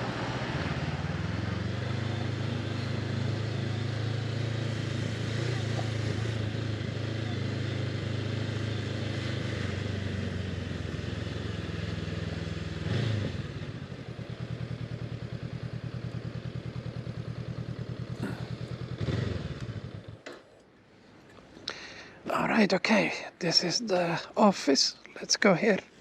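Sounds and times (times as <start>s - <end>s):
motorcycle engine idling: 13.5s - 20.3s.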